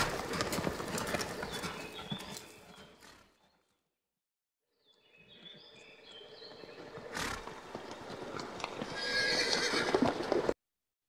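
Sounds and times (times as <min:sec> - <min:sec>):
horse whinnying: 0:08.8 - 0:10.2.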